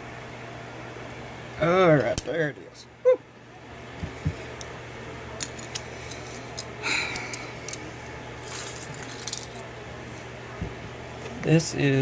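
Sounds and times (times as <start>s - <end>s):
low fan-like hum: 0.0s - 12.0s.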